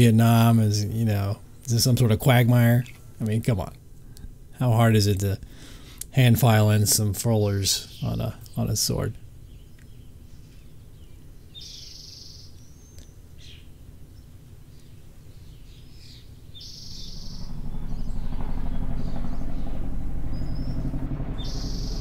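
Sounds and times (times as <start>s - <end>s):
bird chirping: 7.8s - 22.0s
low steady rumble: 13.8s - 22.0s.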